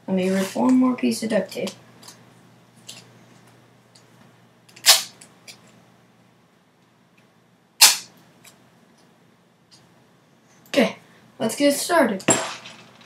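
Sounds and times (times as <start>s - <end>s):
duct tape ripping: 4.8s - 5.2s, 7.8s - 8.1s.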